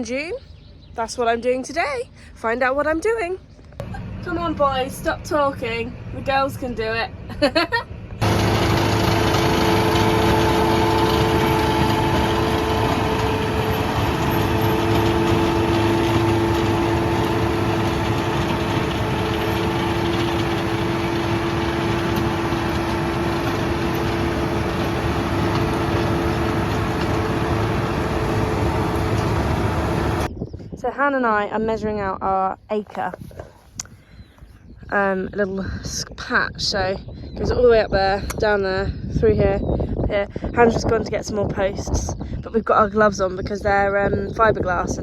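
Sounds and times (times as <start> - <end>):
tractor engine running: 3.7 - 30.3.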